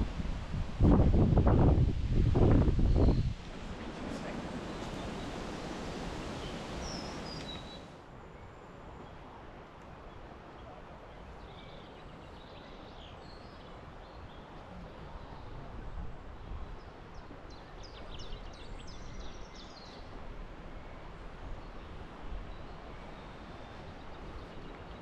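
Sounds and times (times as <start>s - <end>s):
wind rushing through woodland: 0.0s - 25.0s
songbirds singing: 2.5s - 8.0s, 11.1s - 15.7s, 16.3s - 20.1s, 20.8s - 25.0s.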